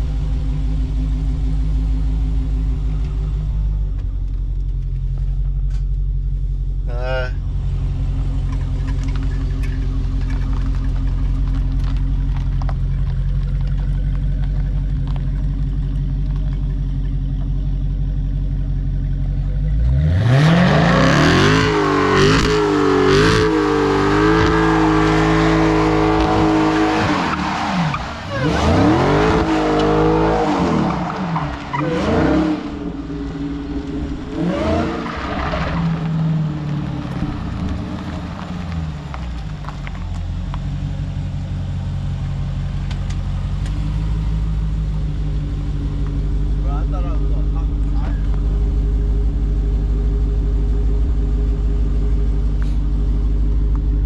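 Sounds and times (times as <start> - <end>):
car engine idling: 0.0 - 20.6, 21.2 - 54.0
tires spinning and squealing: 6.8 - 17.6, 19.0 - 54.0
car engine revving hard: 19.8 - 37.6.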